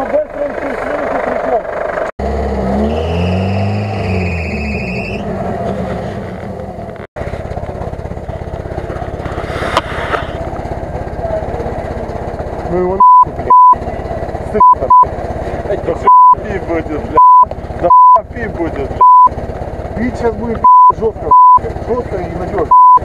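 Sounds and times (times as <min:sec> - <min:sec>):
off-road vehicle engine revving: 0:00.0 - 0:23.0
censor bleep: 0:13.0 - 0:13.8, 0:14.6 - 0:15.1, 0:16.1 - 0:16.4, 0:17.2 - 0:18.2, 0:19.0 - 0:19.3, 0:20.7 - 0:21.6, 0:22.7 - 0:23.0.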